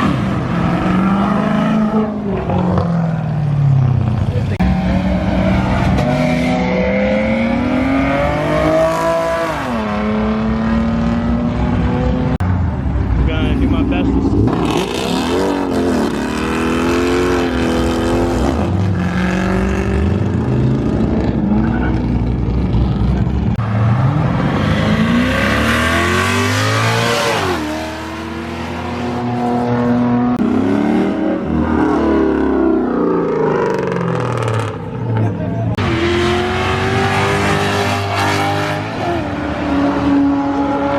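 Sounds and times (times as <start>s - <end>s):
car engines revving: 0.0s - 40.9s.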